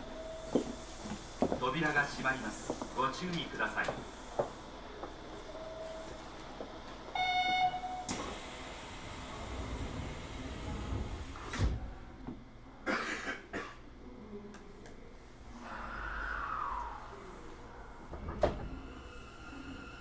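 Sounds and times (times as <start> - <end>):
train motor whine: 7.1 - 11.6.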